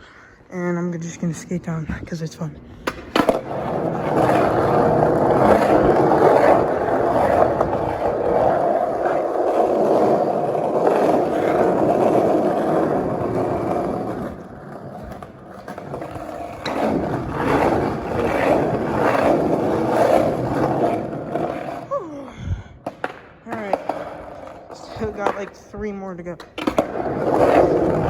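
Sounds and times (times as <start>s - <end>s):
skateboard wheels rolling on concrete: 0.5s - 28.0s.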